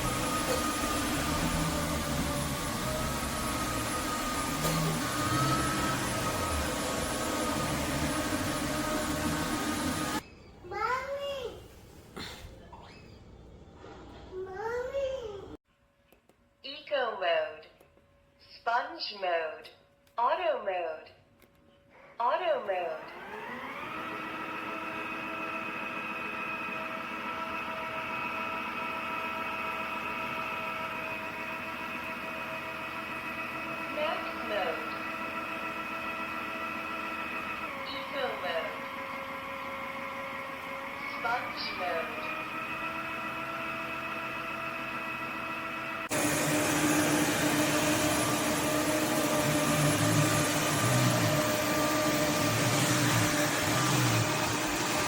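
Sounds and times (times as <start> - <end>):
vacuum mop motor whine: 0.0 - 10.2, 23.0 - 55.0.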